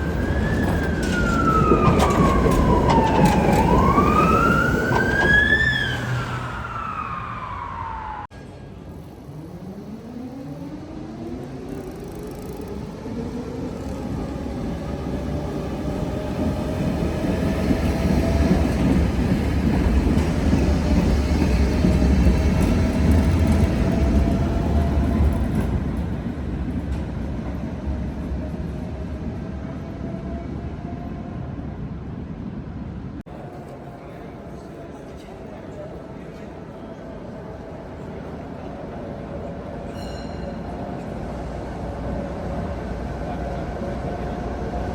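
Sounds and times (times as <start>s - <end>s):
tram motors whining: 0.0s - 8.3s
rumble of wheels on track: 0.0s - 44.9s.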